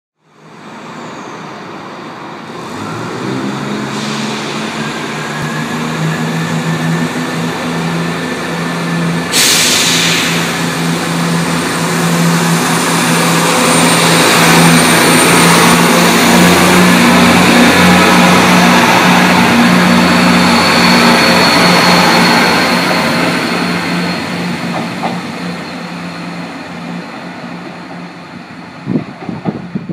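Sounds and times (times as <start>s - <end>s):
diesel train engines humming: 0.2s - 29.9s
loud hiss: 3.9s - 4.8s, 9.3s - 11.4s.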